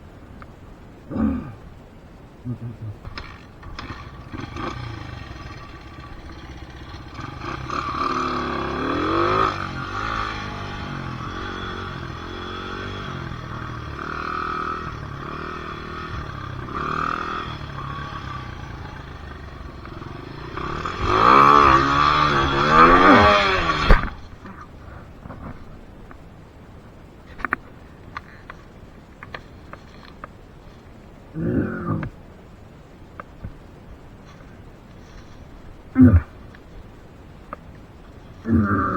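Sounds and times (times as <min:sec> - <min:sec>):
dirt bike engine revving: 0:03.0 - 0:24.5
sharp thump: 0:23.6 - 0:24.2.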